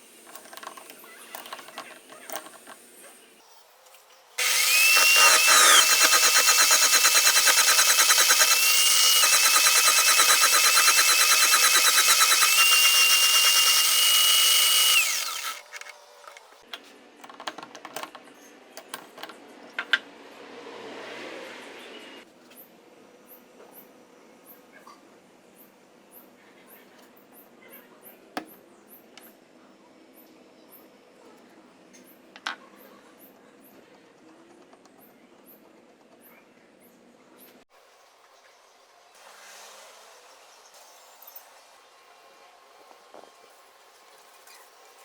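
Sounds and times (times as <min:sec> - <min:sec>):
electric drill whine: 0:04.4 - 0:15.8.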